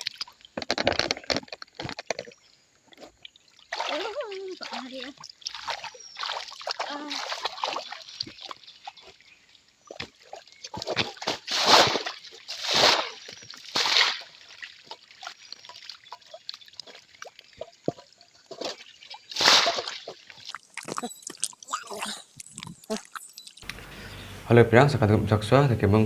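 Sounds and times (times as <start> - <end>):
water splashing and sloshing: 0.0 - 23.8
water trickling and dripping: 0.0 - 23.8
loud splashes: 3.7 - 8.5, 10.3 - 16.0, 18.6 - 20.9.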